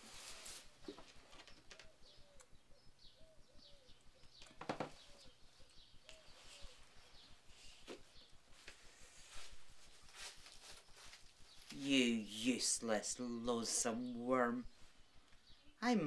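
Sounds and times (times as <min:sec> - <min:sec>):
bird cooing: 0:01.3 - 0:08.0.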